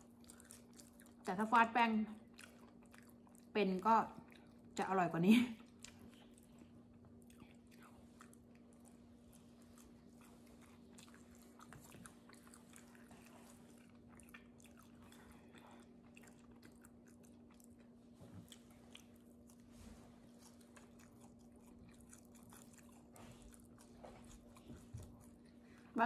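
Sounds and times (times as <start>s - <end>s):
chewing flatbread: 0.0s - 4.9s, 5.6s - 26.0s.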